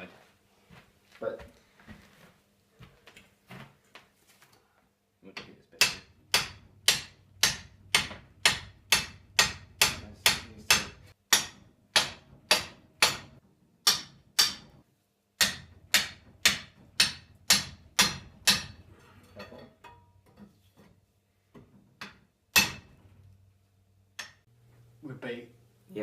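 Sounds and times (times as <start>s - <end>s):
hammer striking metal engine barrel: 5.8s - 14.8s, 15.4s - 18.8s, 22.0s - 23.1s.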